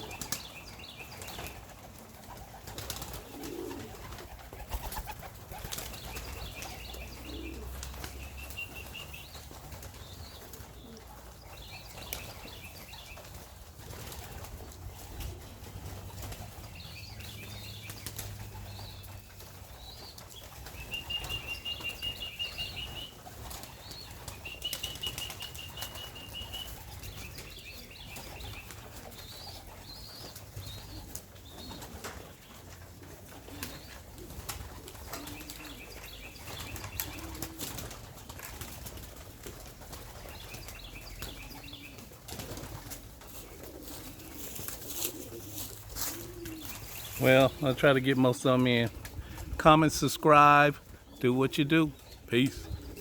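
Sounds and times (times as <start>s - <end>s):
pigeon wings flapping: 0.0s - 47.6s
high chirping calls: 19.9s - 23.2s, 23.9s - 31.0s.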